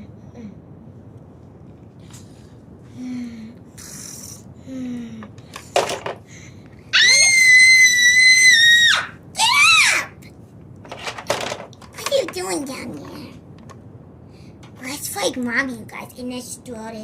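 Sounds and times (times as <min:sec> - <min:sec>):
child screaming: 0:07.0 - 0:10.2.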